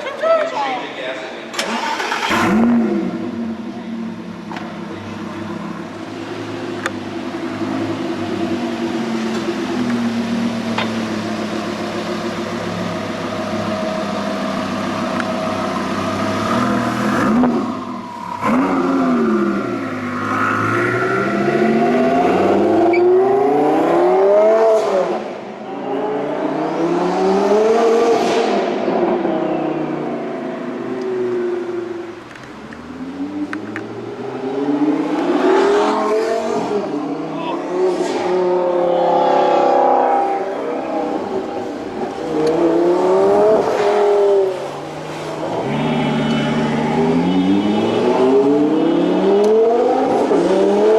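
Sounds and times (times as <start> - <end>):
car engine idling and revving: 1.4 - 50.9.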